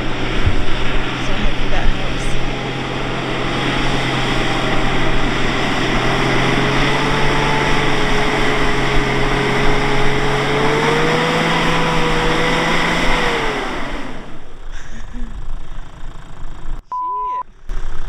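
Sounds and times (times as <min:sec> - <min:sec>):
steady rush of noise: 0:00.0 - 0:14.3
vehicle engine working hard: 0:00.0 - 0:18.0.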